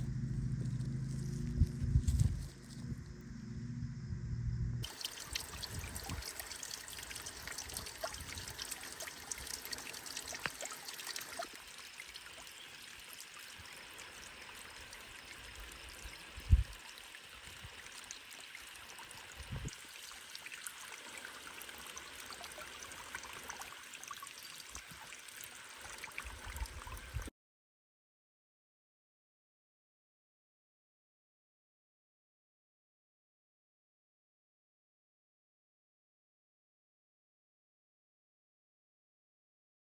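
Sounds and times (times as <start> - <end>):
water trickling: 4.8 - 27.3.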